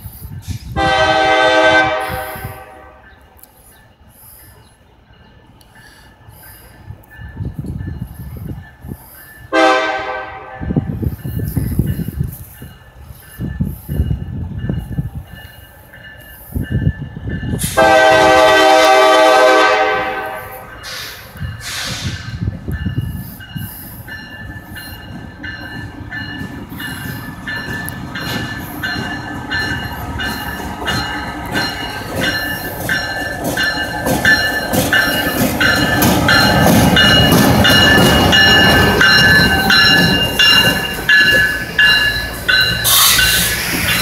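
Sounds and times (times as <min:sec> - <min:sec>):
diesel locomotive engine rumble: 0:00.0 - 0:44.0
grade-crossing bell ringing: 0:02.2 - 0:09.6, 0:10.8 - 0:18.4, 0:22.3 - 0:44.0
train wheels rolling: 0:10.8 - 0:44.0.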